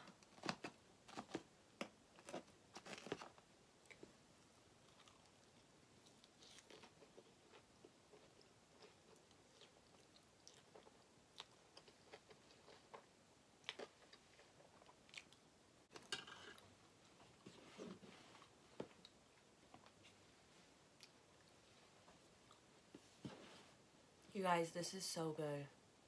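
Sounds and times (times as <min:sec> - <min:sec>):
chewing food: 0:00.2 - 0:15.5.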